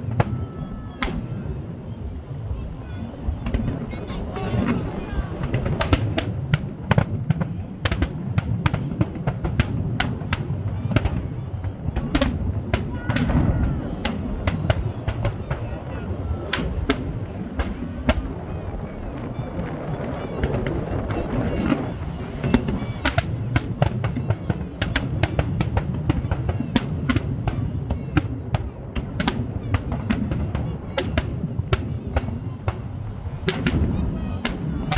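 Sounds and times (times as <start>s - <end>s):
fireworks cracking and popping: 0.0s - 34.9s.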